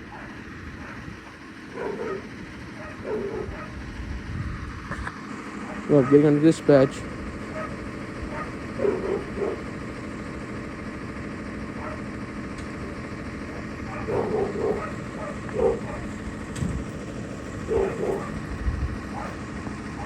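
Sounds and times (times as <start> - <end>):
engine idling: 0.0 - 20.0
dog barking: 0.1 - 1.1, 1.7 - 3.8, 5.6 - 6.4, 7.5 - 9.7, 11.8 - 12.1, 13.8 - 16.2, 17.6 - 20.0.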